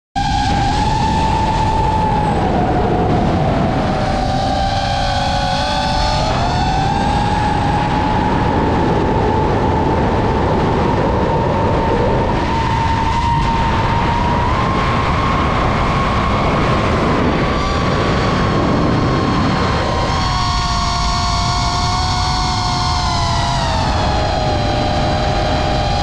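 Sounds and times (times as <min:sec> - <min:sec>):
drone motors whining: 0:00.2 - 0:26.0
wind noise: 0:00.2 - 0:26.0.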